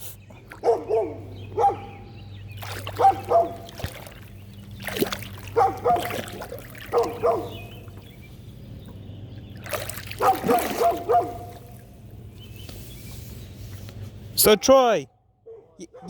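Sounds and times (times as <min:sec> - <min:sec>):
dog barking: 0:00.6 - 0:02.0, 0:02.9 - 0:03.7, 0:05.5 - 0:07.7, 0:10.2 - 0:11.6, 0:15.4 - 0:16.0.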